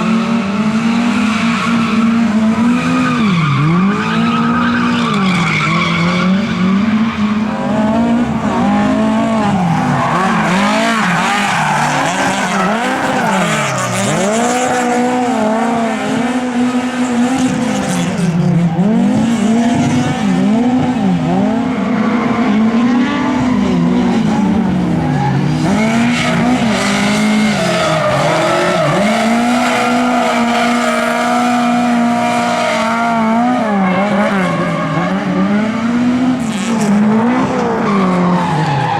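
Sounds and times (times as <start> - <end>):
race car engines revving: 0.0 - 38.9
tyre squeal: 1.3 - 14.3.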